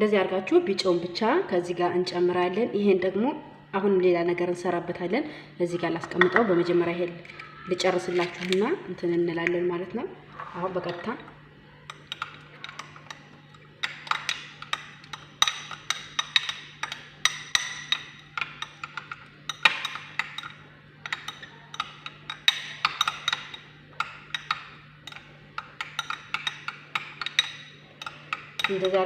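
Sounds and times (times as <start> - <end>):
utensil beating paste in bowl: 11.9 - 29.0.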